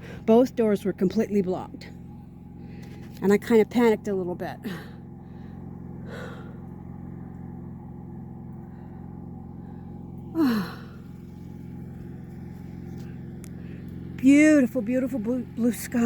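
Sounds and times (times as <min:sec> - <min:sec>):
generator engine humming: 0:00.0 - 0:16.0
faint breath: 0:04.7 - 0:06.8, 0:08.6 - 0:11.4
person sighing: 0:10.4 - 0:11.0.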